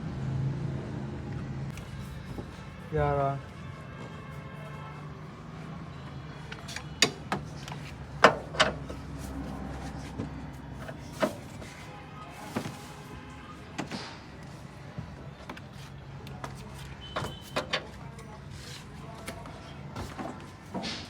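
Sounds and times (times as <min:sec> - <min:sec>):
metallic knocks and clanks: 0:06.6 - 0:09.2.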